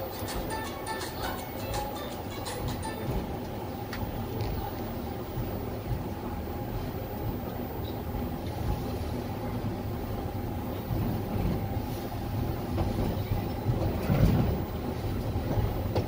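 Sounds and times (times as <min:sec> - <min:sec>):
train rumble inside cabin: 0:00.0 - 0:16.0.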